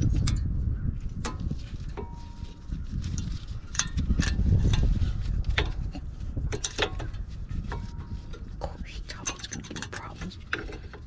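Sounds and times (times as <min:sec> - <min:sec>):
metal clicks of brake hardware: 0:03.1 - 0:04.9, 0:05.5 - 0:08.5, 0:09.2 - 0:11.0.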